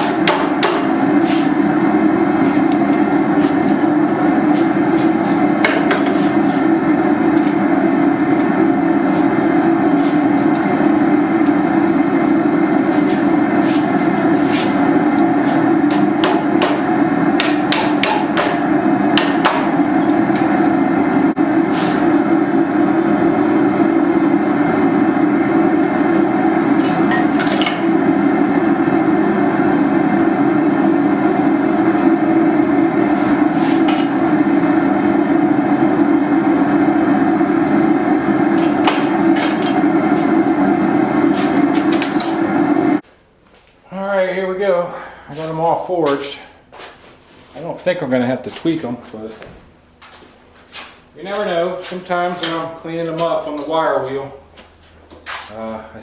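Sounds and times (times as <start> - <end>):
hammer striking steel on anvil: 0.0 - 0.9, 15.9 - 16.8, 17.4 - 18.6, 19.2 - 19.7.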